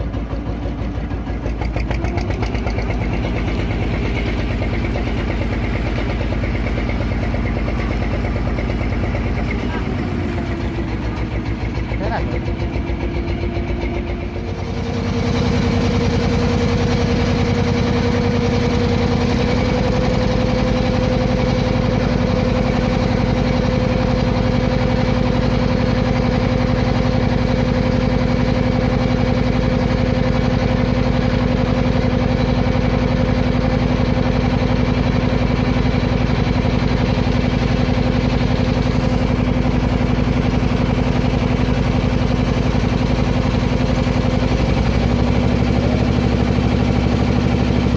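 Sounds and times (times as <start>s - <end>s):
boat engine running: 0.0s - 47.9s.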